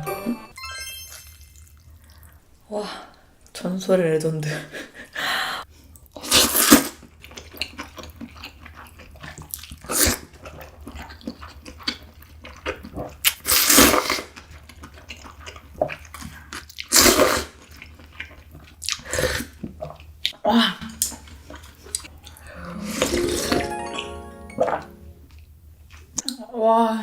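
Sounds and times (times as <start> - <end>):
faint mouth and chewing sounds: 5.7 - 20.4.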